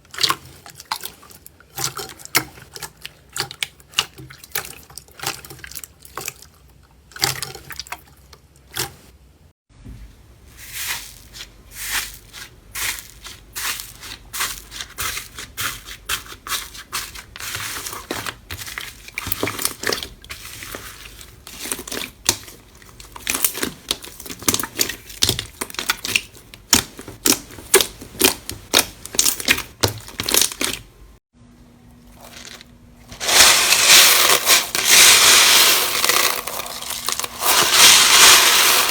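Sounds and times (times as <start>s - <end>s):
slime crunching: 33.2s - 38.9s.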